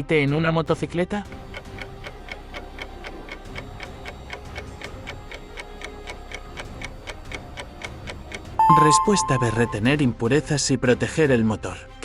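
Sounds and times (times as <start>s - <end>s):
clock ticking: 8.6s - 9.9s.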